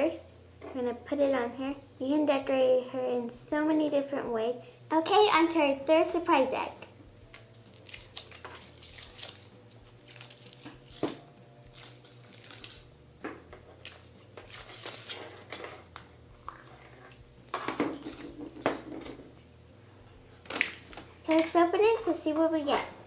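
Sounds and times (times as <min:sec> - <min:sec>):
foil wrapper crinkling: 0:07.3 - 0:12.9, 0:13.7 - 0:15.6.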